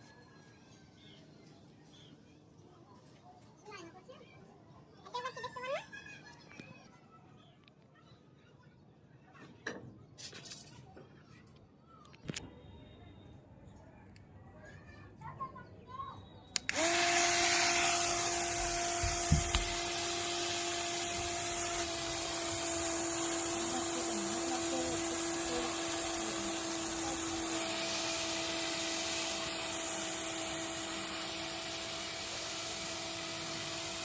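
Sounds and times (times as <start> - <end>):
toy helicopter motor whining: 16.6 - 34.0.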